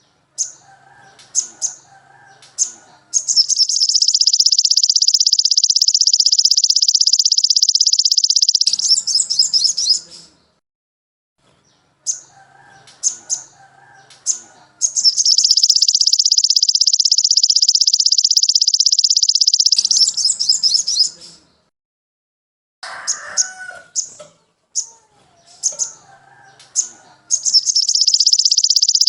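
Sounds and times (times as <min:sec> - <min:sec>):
short bird chirps: 0:02.6 - 0:10.4, 0:14.3 - 0:21.6, 0:26.8 - 0:29.0
songbird fast high trill: 0:03.2 - 0:10.1, 0:14.8 - 0:21.2, 0:27.3 - 0:29.0.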